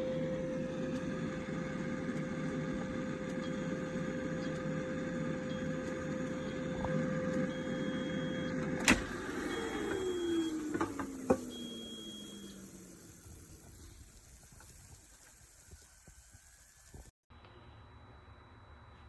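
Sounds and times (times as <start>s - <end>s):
air fryer fan humming: 0.0s - 17.0s
long high beeps: 3.4s - 4.6s, 5.4s - 6.9s, 7.5s - 8.6s, 9.2s - 13.4s.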